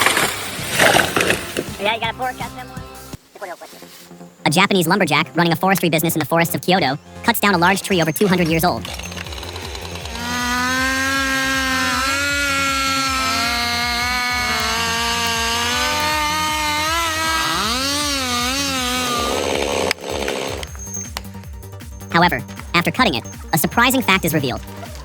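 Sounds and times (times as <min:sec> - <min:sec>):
chainsaw cutting a tree: 0:00.0 - 0:01.8, 0:08.3 - 0:21.3.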